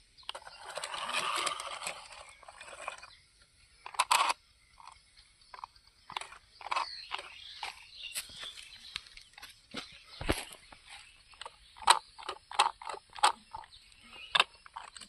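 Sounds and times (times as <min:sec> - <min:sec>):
toy truck tyres crunching on dirt: 0:00.0 - 0:03.2, 0:03.8 - 0:15.0
small clicks and bumps: 0:03.8 - 0:15.0.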